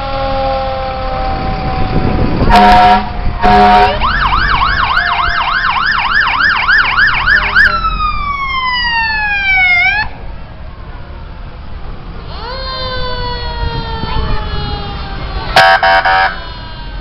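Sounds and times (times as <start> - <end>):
siren tone falling in pitch: 0.8 - 10.1
electronic siren warbling: 1.0 - 10.1
air horn blasts: 2.5 - 4.1, 15.5 - 16.4.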